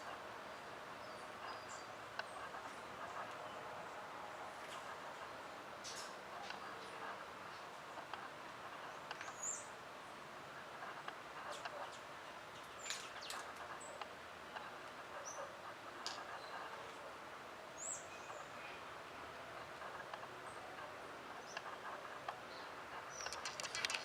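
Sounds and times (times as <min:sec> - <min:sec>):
sharp clicks: 0:23.1 - 0:24.0.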